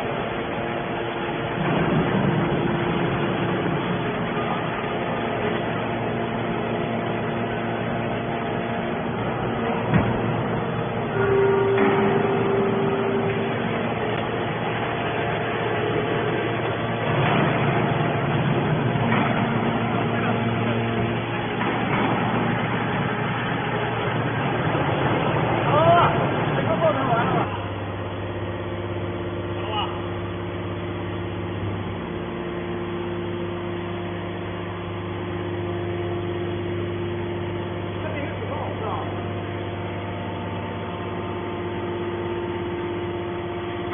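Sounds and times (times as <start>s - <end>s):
heavy machinery mechanical din: 0.0s - 38.5s
held tone: 11.0s - 14.2s.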